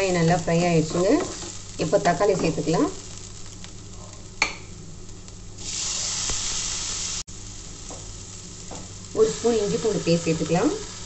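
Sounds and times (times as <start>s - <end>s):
loud sizzling hiss: 0.0s - 11.0s
onions sizzling in oil: 0.0s - 11.0s
tap on pan: 4.4s - 4.7s, 7.8s - 8.1s, 8.7s - 8.9s.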